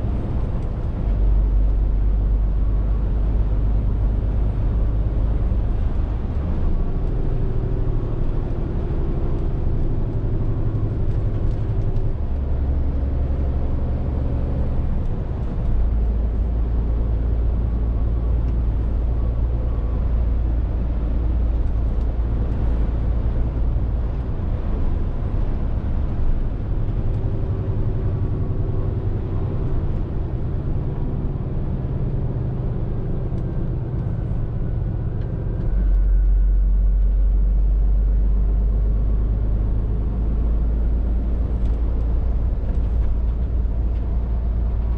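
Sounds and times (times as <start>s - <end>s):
lorry diesel engine running: 0.0s - 44.9s.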